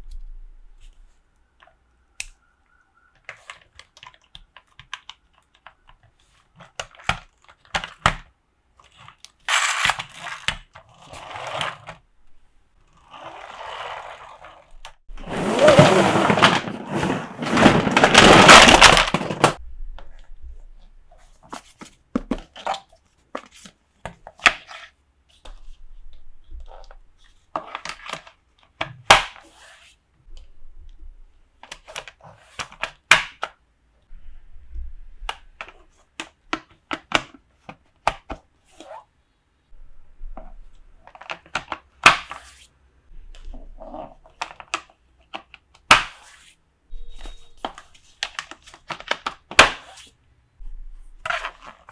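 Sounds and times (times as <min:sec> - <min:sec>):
packaging rustling: 0:15.2 - 0:19.6.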